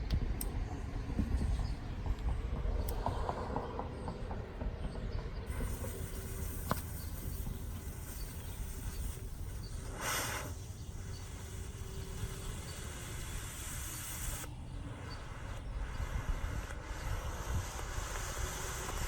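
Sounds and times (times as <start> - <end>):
smoke ball hissing: 5.5 - 19.0
small crackles: 15.1 - 19.0.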